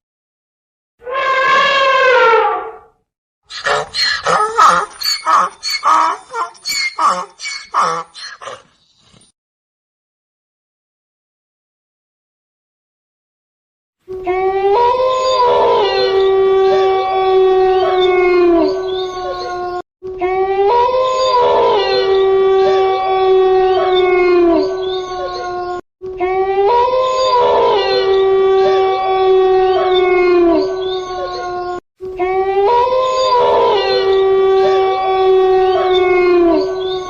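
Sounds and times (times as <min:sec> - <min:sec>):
dog howling: 0:14.2 - 0:19.8, 0:20.4 - 0:25.8, 0:26.4 - 0:37.0.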